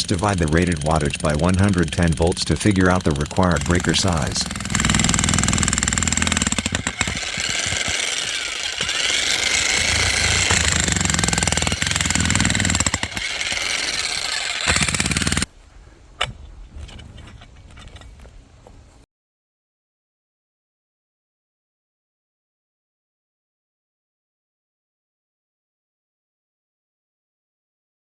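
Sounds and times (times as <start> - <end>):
jackhammer chiselling stone: 0.0 - 15.5.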